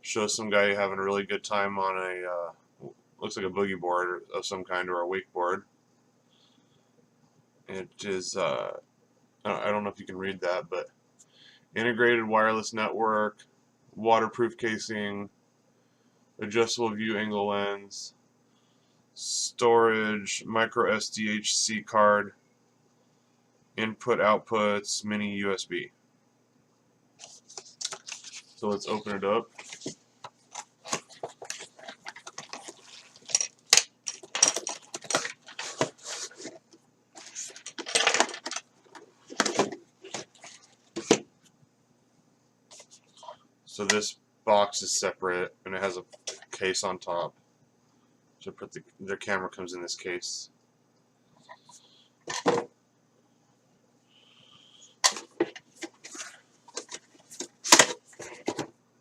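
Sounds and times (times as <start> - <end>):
packaging clicks scrapes and rustles: 27.2 - 41.1, 55.0 - 58.7.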